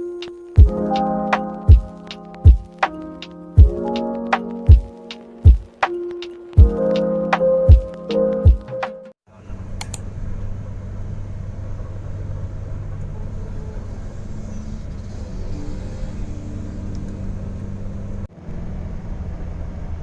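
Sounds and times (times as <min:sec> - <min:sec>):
road vehicle interior drone: 0:09.3 - 0:20.0.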